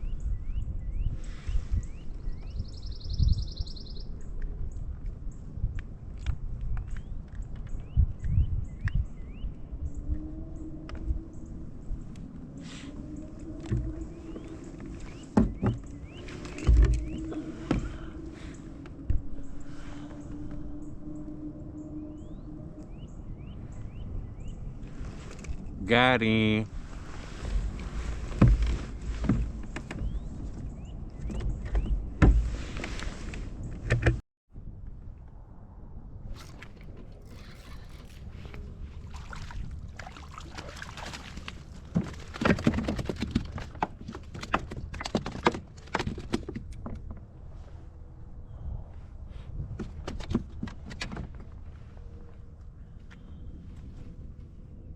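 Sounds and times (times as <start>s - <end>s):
wind gust on microphone: 0.0s - 54.9s
knocks and scrapes on kayak: 13.5s - 18.3s, 26.8s - 30.6s, 36.4s - 47.2s.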